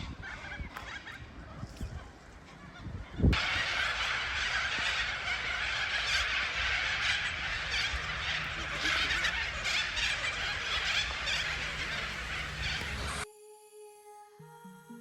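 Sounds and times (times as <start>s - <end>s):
chorus of bird calls: 0.0s - 13.2s
geese honking: 2.5s - 13.2s.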